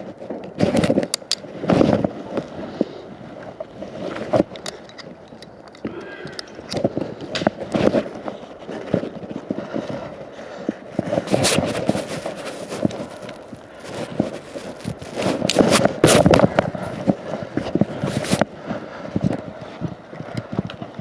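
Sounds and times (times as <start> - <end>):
knocks clicks and scraping: 0.0 - 2.6, 3.7 - 10.0, 10.9 - 18.5.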